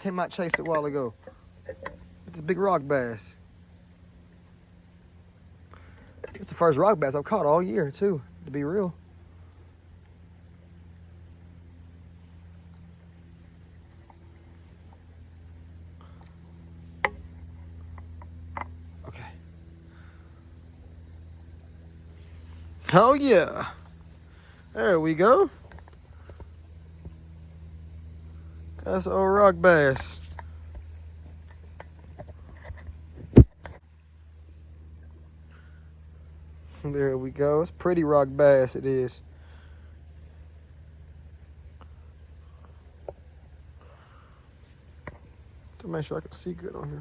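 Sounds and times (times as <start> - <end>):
crickets trilling: 0.0 - 47.0
insects droning: 0.0 - 47.0
loud thump: 33.3 - 33.6.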